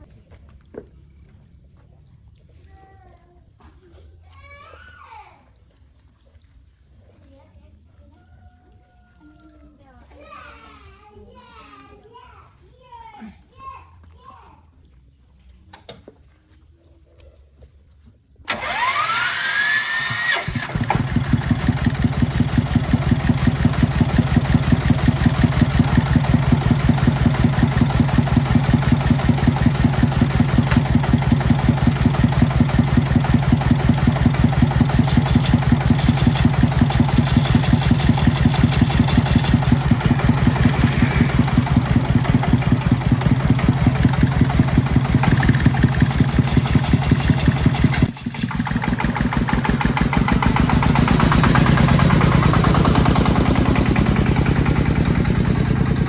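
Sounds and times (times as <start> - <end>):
tractor engine cranking: 18.5 - 56.0
tractor engine idling: 18.5 - 56.0.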